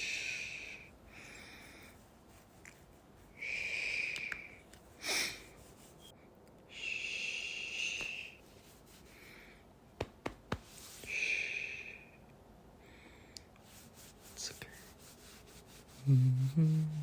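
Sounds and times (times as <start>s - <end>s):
slow breathing: 0.0s - 2.2s, 3.3s - 5.7s, 6.7s - 8.4s, 12.8s - 13.5s.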